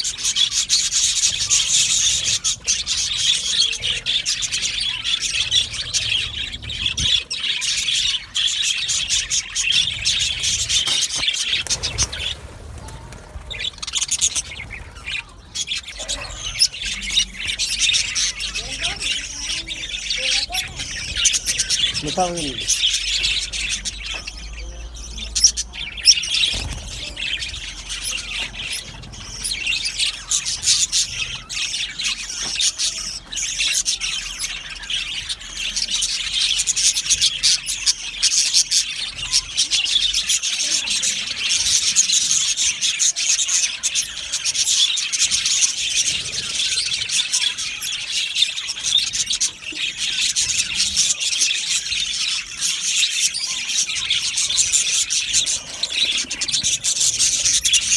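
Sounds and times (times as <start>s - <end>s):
budgerigars chattering: 0.0s - 57.9s.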